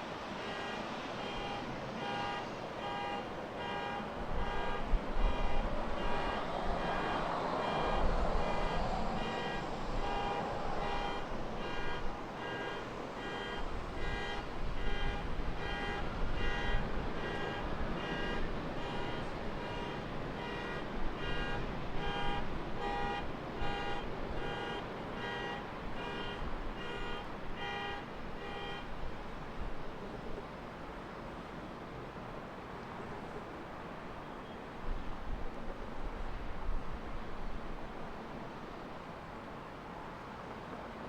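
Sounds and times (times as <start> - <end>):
jet engine on takeoff: 6.3 - 12.3.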